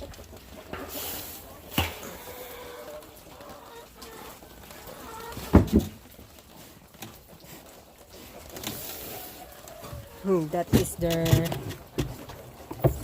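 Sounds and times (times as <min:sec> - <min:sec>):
chickens clucking softly: 0:00.8 - 0:05.5.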